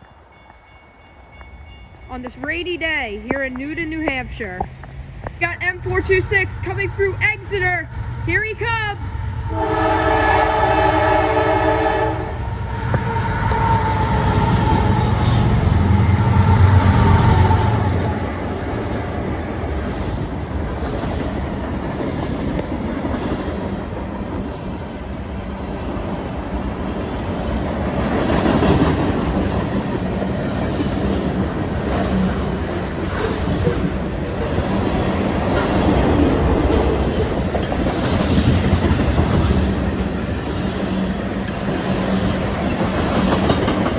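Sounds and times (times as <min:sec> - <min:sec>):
locomotive rumbling past: 0:00.0 - 0:43.9
train horn: 0:09.5 - 0:18.3
wheel clatter on rail joints: 0:27.4 - 0:43.9.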